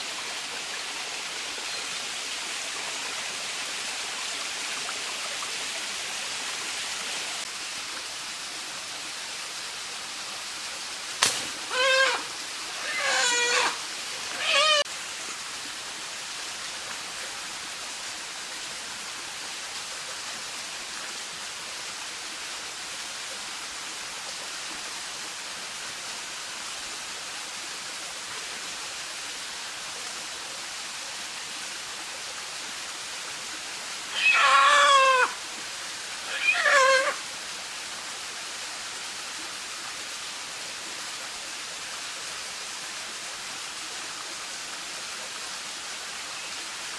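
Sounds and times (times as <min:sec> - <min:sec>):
stream rushing: 0:00.0 - 0:27.4, 0:30.6 - 0:46.9
animal wavering calls: 0:11.4 - 0:14.9, 0:34.1 - 0:35.4, 0:36.2 - 0:37.2.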